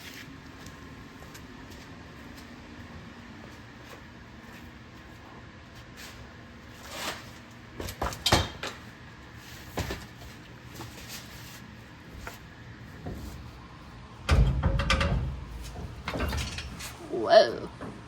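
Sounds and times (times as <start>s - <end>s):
metal tools clanking: 14.3s - 17.1s.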